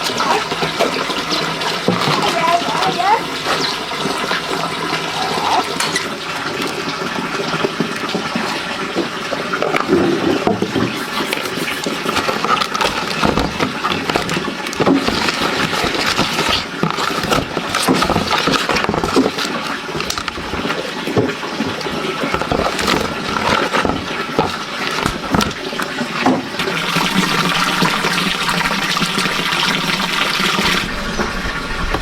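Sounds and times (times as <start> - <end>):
water splashing and churning: 0.0 - 32.0.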